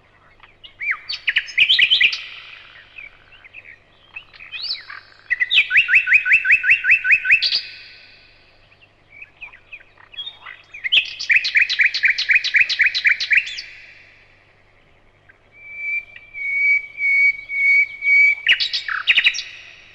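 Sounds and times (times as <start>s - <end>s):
bird trilling: 0.4s - 8.1s, 15.3s - 19.7s
bird whistling level notes: 15.6s - 19.5s.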